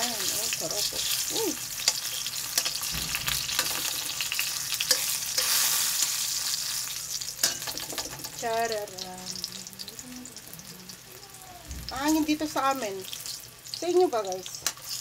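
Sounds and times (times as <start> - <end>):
eggplant sizzling in hot oil: 0.0 - 15.0
tongs clicking against pan: 0.2 - 2.9, 3.5 - 6.1, 7.4 - 8.4, 13.1 - 15.0.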